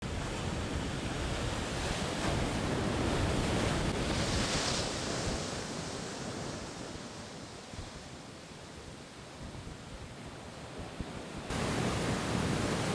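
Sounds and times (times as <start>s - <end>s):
wind: 0.0s - 12.9s
ocean surf crashing: 0.1s - 7.7s, 10.7s - 12.9s.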